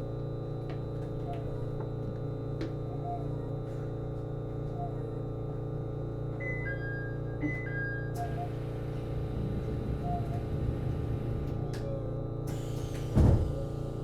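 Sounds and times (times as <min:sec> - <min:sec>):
train engine drone: 0:06.7 - 0:14.0.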